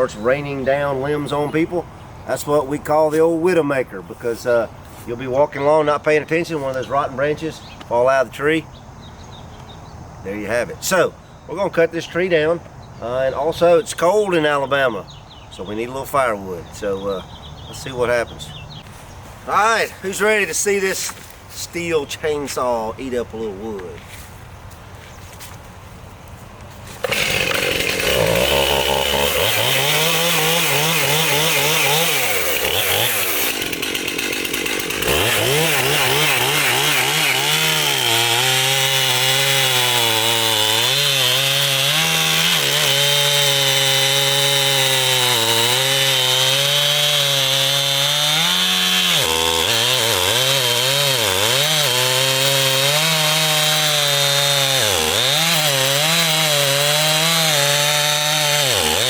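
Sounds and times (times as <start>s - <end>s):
chainsaw cutting wood: 26.9s - 59.0s.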